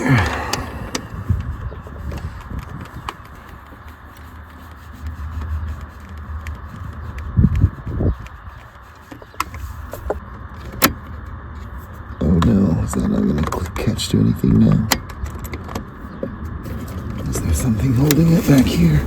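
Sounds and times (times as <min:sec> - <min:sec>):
rubbing and scraping: 0:00.9 - 0:10.2, 0:16.0 - 0:19.0.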